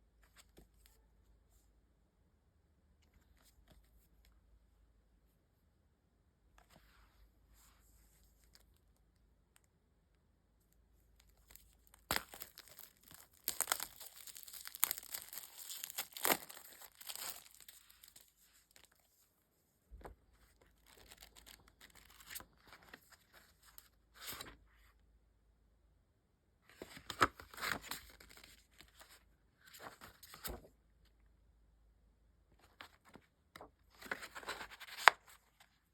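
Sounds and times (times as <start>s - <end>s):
packaging tearing and crinkling: 11.9s - 18.8s.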